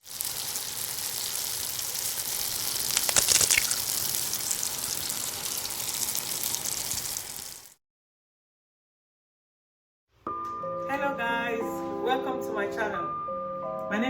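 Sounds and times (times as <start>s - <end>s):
crackling hiss of cooking: 0.0s - 7.8s.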